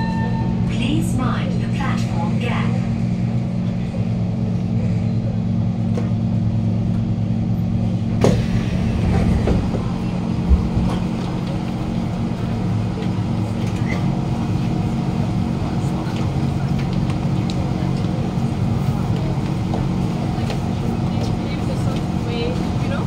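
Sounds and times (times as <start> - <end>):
train car electrical hum: 0.0 - 23.0
train doors clacking open: 8.1 - 14.2.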